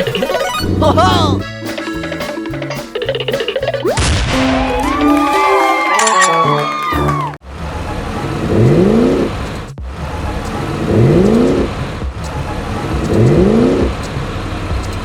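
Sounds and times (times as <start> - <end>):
low engine rumble: 7.1 - 15.0
engine revving whine: 7.4 - 15.0.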